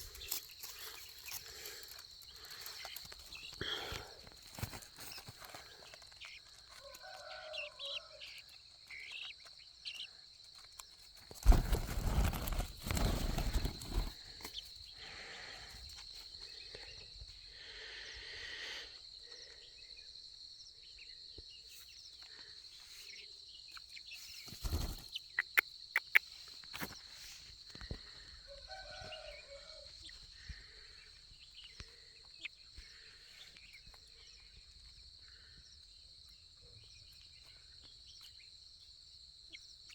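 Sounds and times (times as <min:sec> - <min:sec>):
chicks calling softly: 0:00.0 - 0:39.9
sharp clicks: 0:25.4 - 0:26.9.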